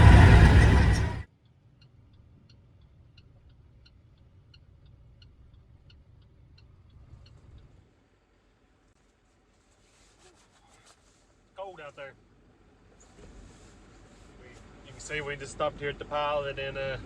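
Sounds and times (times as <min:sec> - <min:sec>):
low hum: 0:00.0 - 0:01.3
truck road and wind noise: 0:00.0 - 0:08.8, 0:11.6 - 0:17.0
faint even ticking: 0:01.4 - 0:08.6.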